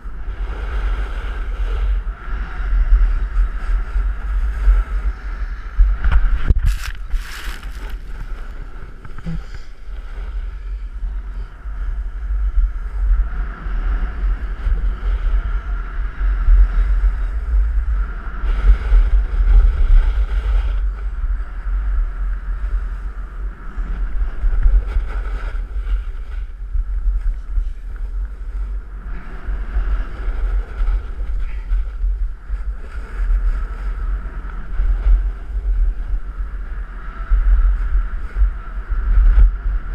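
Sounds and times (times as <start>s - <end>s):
wind buffeting microphone: 0.0s - 39.9s
snowboard sliding on packed snow: 6.3s - 10.8s.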